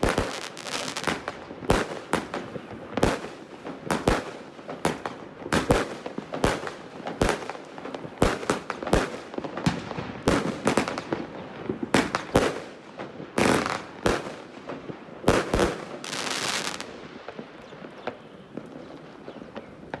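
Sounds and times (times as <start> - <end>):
firework hissing crackle: 0.0 - 12.5, 15.3 - 17.2
firework bangs: 0.0 - 20.0
faint firework pops: 13.4 - 20.0.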